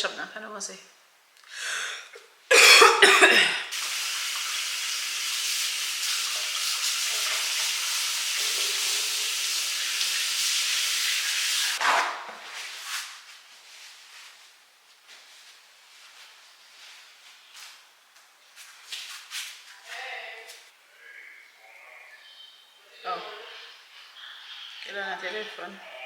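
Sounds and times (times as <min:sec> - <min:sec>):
person coughing: 0:02.5 - 0:03.7.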